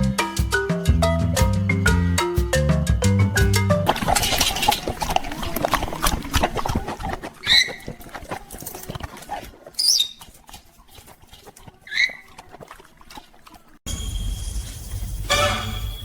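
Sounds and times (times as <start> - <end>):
clicking and scratching: 3.9 - 13.7
parrot chirping: 7.4 - 8.0, 9.8 - 10.2.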